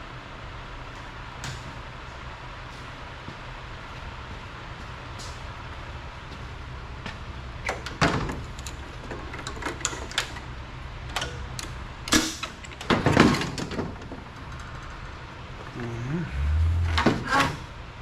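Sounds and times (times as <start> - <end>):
knocks and clunks of engine handling: 7.0 - 10.5, 11.1 - 15.0, 16.6 - 17.8
steady low hum: 14.2 - 18.0.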